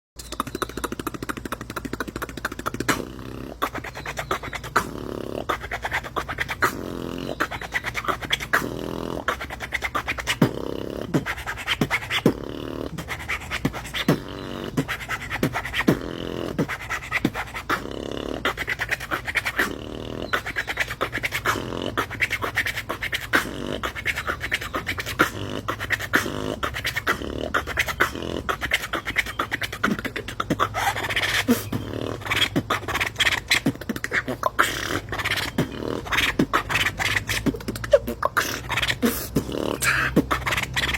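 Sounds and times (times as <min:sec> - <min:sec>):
beatboxing vocal percussion: 0:00.2 - 0:40.9.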